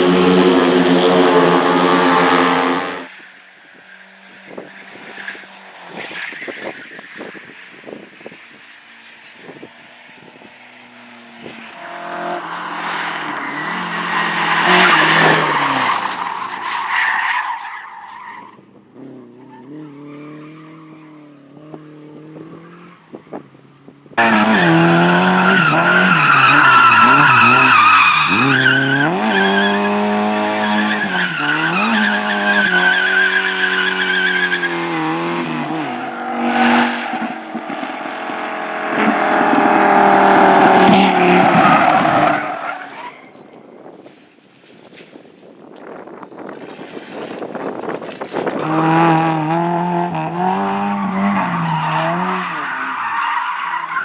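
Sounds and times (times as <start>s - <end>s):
race car engine revving: 0.0s - 3.1s, 24.2s - 43.0s.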